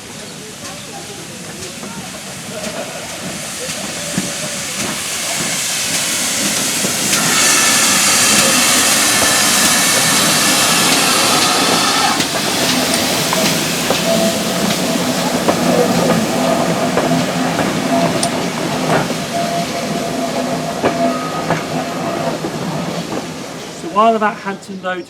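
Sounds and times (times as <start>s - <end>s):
steam locomotive hissing: 0.0s - 25.0s
steady engine tone: 7.1s - 12.3s.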